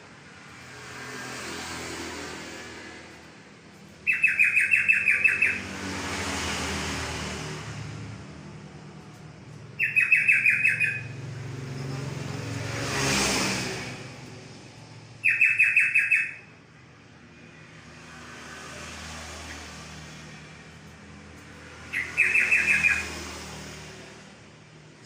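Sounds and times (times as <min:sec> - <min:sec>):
passing vehicle: 0:00.0 - 0:25.0
bird chattering song: 0:04.0 - 0:05.6, 0:09.8 - 0:11.1, 0:15.2 - 0:16.4, 0:21.9 - 0:23.1.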